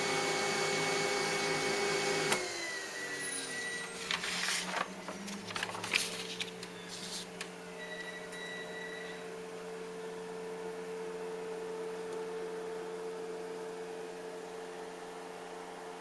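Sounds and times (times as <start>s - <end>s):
laser printer humming: 0.1s - 5.8s.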